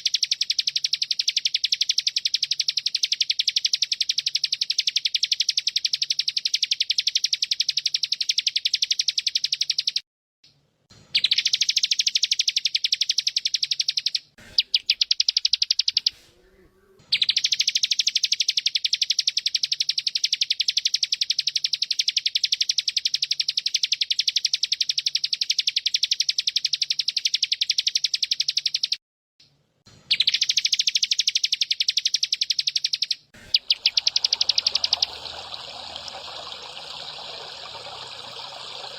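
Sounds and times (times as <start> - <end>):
cicada buzzing: 33.4 - 38.9.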